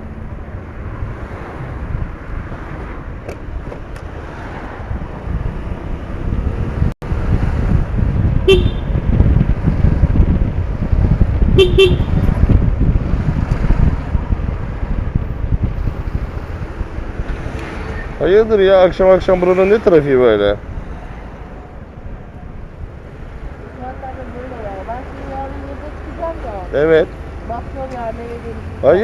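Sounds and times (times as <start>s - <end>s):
wind rushing over microphone: 0.0s - 29.0s
vehicle horn tooting: 8.4s - 9.1s, 11.6s - 12.3s.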